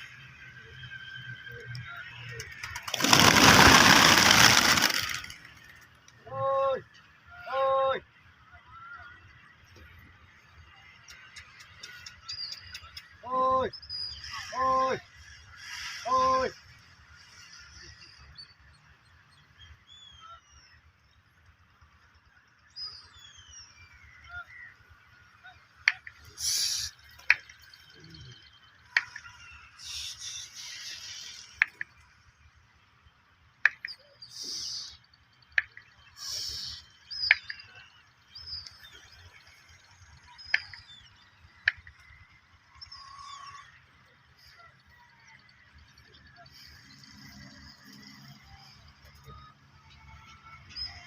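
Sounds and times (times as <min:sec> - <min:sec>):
birds chirping: 0:00.0 - 0:51.0
short hissing bursts: 0:26.4 - 0:27.0, 0:29.8 - 0:31.6, 0:34.3 - 0:35.0, 0:36.2 - 0:36.9.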